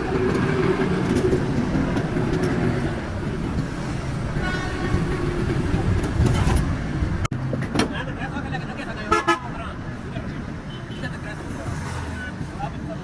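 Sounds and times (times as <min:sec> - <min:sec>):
road traffic rumbling: 0:00.0 - 0:13.0
vehicle horn: 0:04.4 - 0:05.1.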